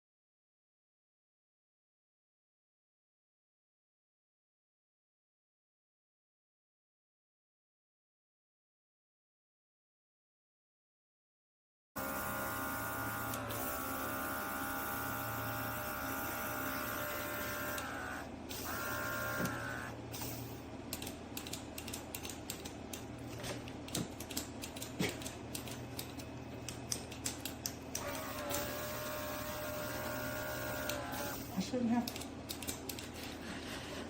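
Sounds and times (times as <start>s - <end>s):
small compressor motor whining: 12.0s - 20.5s, 28.0s - 31.6s.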